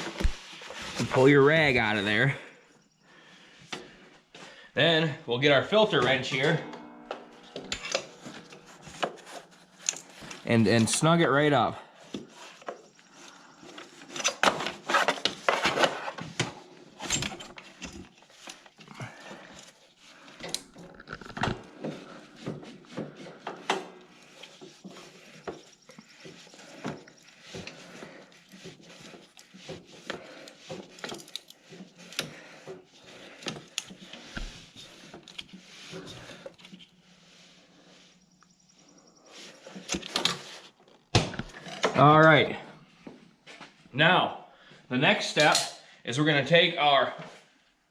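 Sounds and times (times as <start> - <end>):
hand tools clinking on metal: 45.4 - 45.9.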